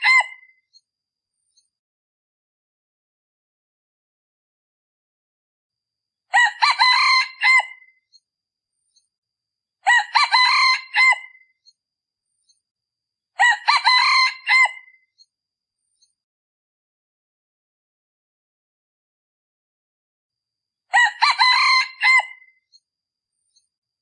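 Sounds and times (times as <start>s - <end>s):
rooster crowing: 6.3s - 7.9s, 9.8s - 11.4s, 13.4s - 14.9s, 20.9s - 22.5s.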